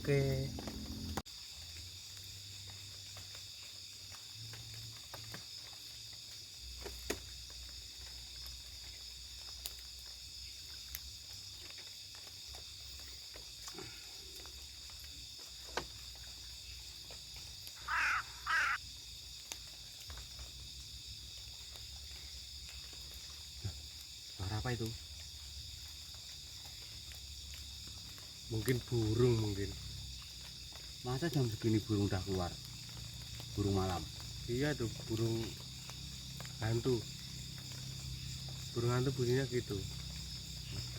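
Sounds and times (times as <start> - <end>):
crickets and insects chirping: 0.0 - 40.9
animal wavering calls: 17.8 - 18.8.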